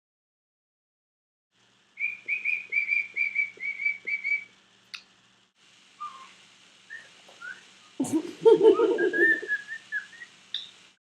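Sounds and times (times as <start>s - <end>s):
cockatiel whistling: 2.0s - 4.5s, 6.0s - 7.7s, 8.6s - 10.7s.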